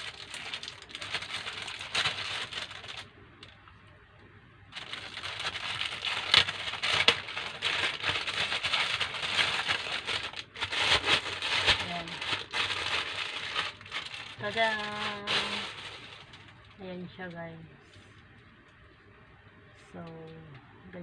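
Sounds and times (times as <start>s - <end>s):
packaging crinkling and rustling: 0.0s - 3.8s, 4.7s - 16.8s.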